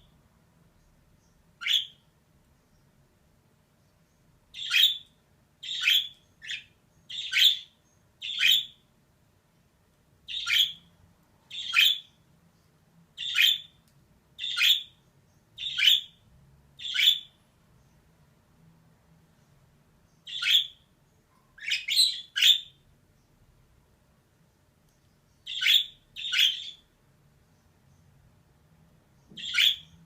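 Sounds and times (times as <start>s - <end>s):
budgerigar calls: 1.6s - 2.0s, 4.6s - 5.0s, 5.6s - 8.8s, 10.3s - 10.9s, 11.5s - 12.1s, 14.4s - 14.9s, 15.6s - 16.2s, 16.8s - 17.3s, 21.6s - 22.8s, 25.5s - 26.8s, 29.4s - 29.9s.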